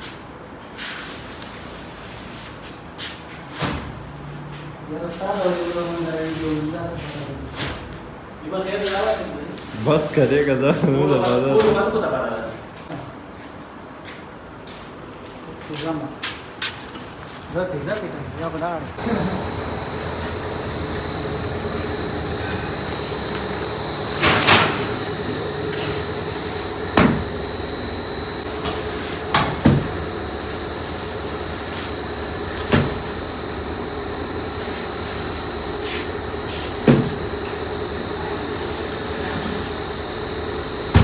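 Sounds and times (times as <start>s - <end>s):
factory machinery whining: 18.9s - 41.0s.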